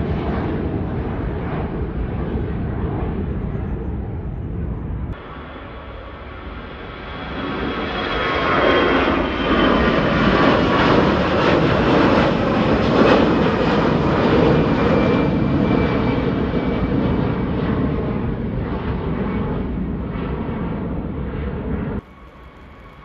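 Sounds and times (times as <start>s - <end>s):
airliner engines roaring: 0.0s - 23.0s
faint high whine: 22.0s - 23.0s.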